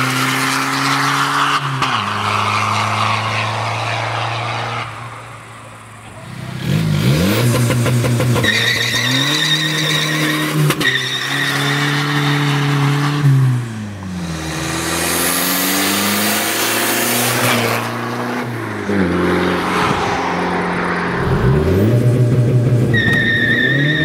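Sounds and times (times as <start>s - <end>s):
diesel engine revving hard: 5.9s - 24.0s.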